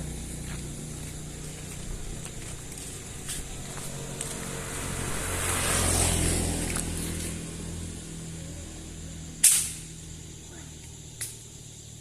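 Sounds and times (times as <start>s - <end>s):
vehicle passing: 0.0s - 12.0s
sharp loud crack: 9.4s - 9.9s.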